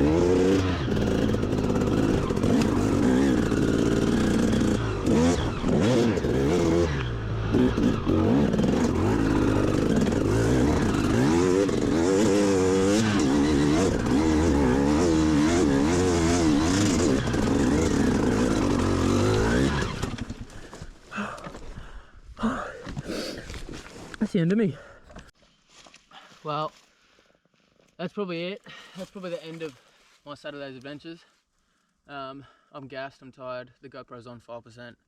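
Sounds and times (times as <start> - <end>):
dirt bike engine revving: 0.0 - 20.7.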